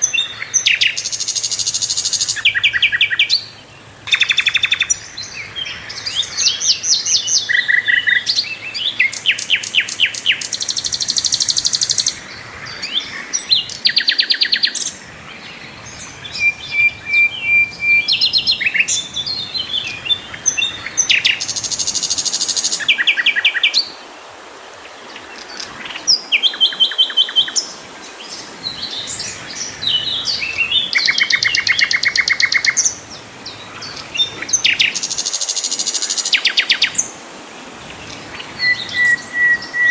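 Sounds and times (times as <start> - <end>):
flycatcher singing trills: 0.0 - 24.0, 25.1 - 37.2, 37.8 - 39.9.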